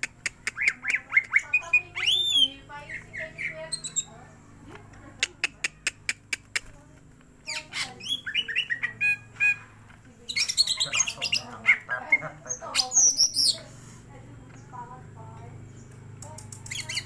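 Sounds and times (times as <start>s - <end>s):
sharp bird clicks: 0.0s - 4.1s, 5.2s - 6.8s, 15.7s - 17.0s
bird calling: 0.0s - 4.4s, 5.2s - 15.0s, 15.6s - 17.0s
high squawking birdsong: 0.0s - 17.0s.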